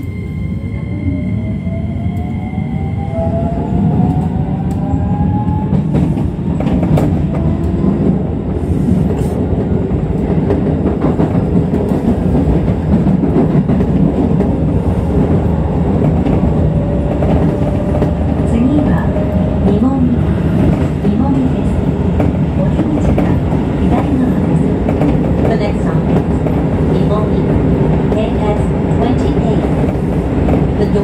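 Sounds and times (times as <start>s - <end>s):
train wheels rumbling on rail: 1.1s - 31.0s
rail joint clacks: 8.9s - 31.0s.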